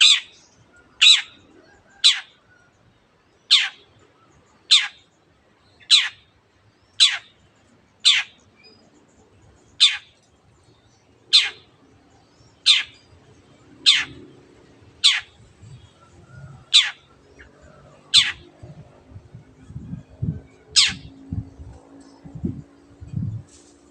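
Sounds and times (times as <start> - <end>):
low hum: 13.1 - 23.9.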